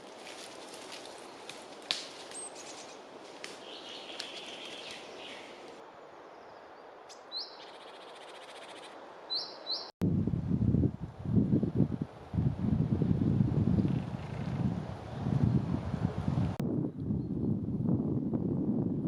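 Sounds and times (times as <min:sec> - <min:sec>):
songbirds chirping and trilling: 0:02.3 - 0:10.0.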